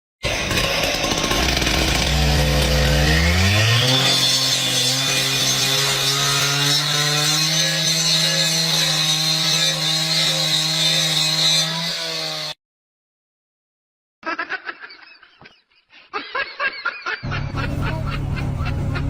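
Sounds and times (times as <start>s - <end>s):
chainsaw engine at full throttle: 0.2s - 12.6s.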